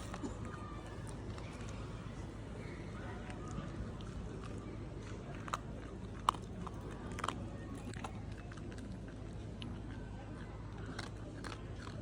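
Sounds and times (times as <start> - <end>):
dog chewing a snack: 0.0 - 12.0.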